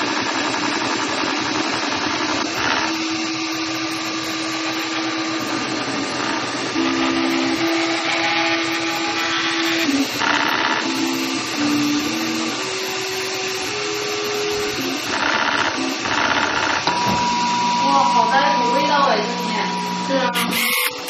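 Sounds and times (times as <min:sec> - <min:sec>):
stepper motors whining: 0:00.0 - 0:21.0.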